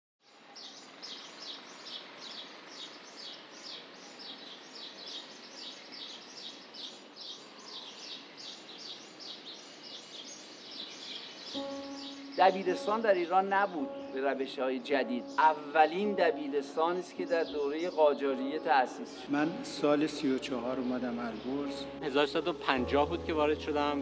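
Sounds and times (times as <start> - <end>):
bird chirping: 0.2 - 24.0.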